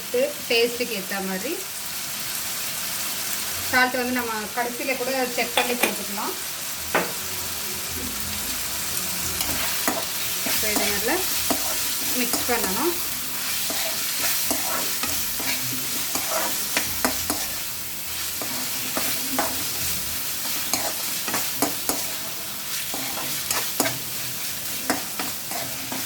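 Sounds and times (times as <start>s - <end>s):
chicken sizzling in a pan: 0.0s - 26.0s
spatula scraping a pan: 9.4s - 26.0s.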